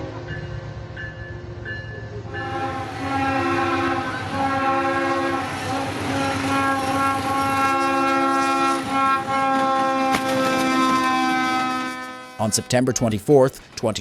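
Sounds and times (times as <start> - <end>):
train running noise: 0.0 - 14.0
train horn blasts: 2.3 - 13.0.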